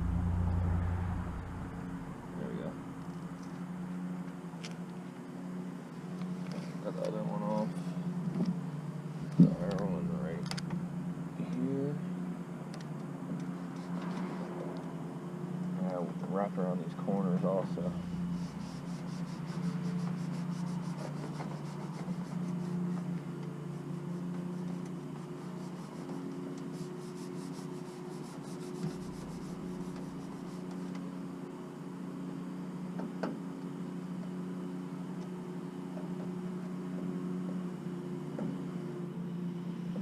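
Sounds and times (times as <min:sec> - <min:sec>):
steady low hum: 0:00.0 - 0:40.0
rubbing strokes on decal: 0:18.3 - 0:30.9.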